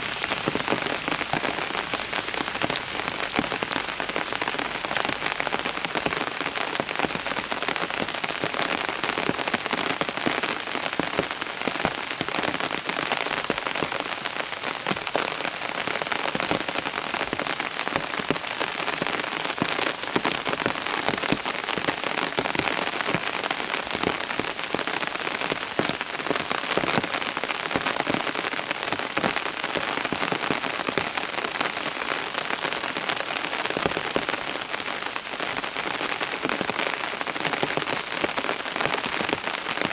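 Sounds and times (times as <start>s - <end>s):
raindrop hits: 0.0s - 8.0s
steady rain falling: 0.0s - 39.9s.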